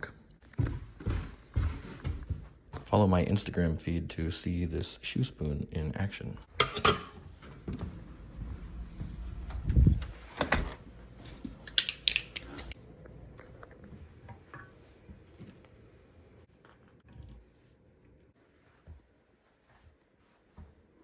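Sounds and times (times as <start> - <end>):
knocks and clicks of objects handled: 11.3 - 12.8.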